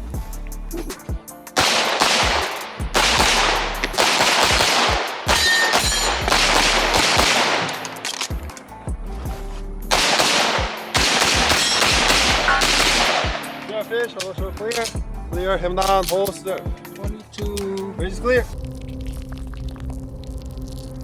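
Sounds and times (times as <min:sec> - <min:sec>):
rapid pistol shots: 0:01.6 - 0:08.6, 0:09.9 - 0:13.6.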